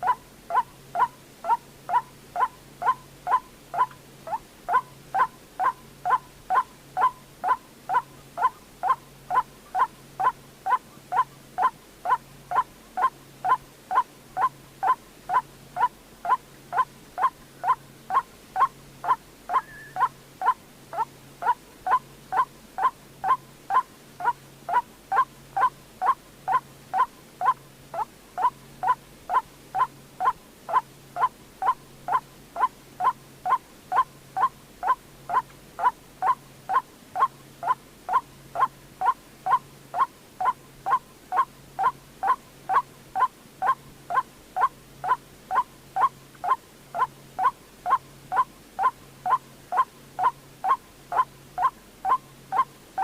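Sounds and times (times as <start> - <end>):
bird call with falling pitch: 19.5 - 20.1.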